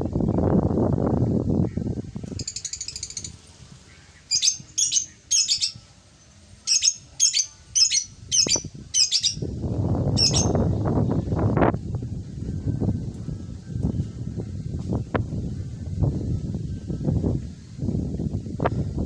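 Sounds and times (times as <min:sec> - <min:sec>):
bird chattering calls: 0:02.3 - 0:05.8, 0:06.6 - 0:09.4, 0:10.2 - 0:10.6
low rustling noise: 0:09.5 - 0:19.0.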